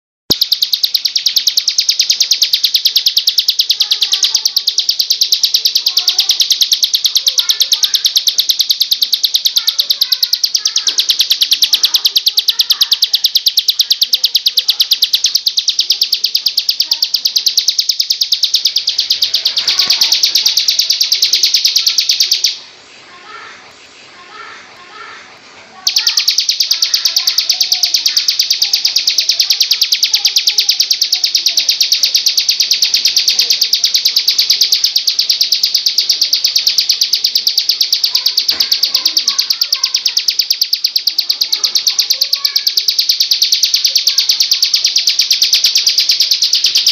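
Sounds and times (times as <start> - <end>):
other birds chirping: 0.3 - 22.8, 25.8 - 46.9.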